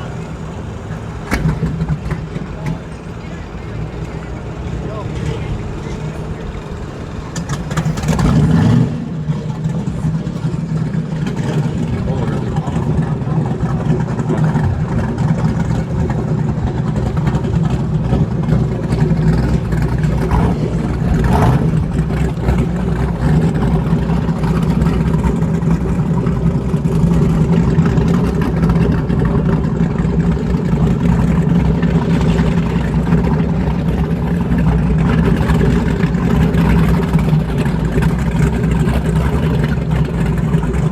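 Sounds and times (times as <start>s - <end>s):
engine running: 0.0s - 40.9s.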